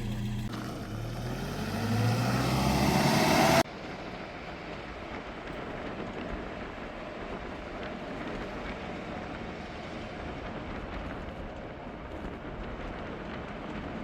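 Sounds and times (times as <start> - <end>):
vehicle engine speeding up: 0.0 - 3.6.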